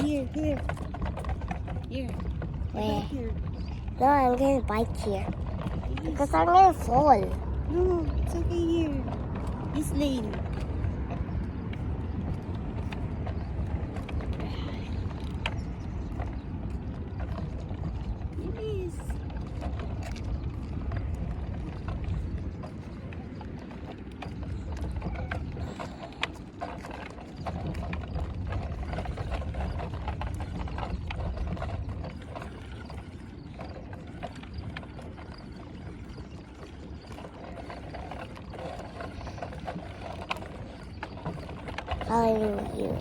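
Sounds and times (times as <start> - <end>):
low rumble: 0.0 - 26.4.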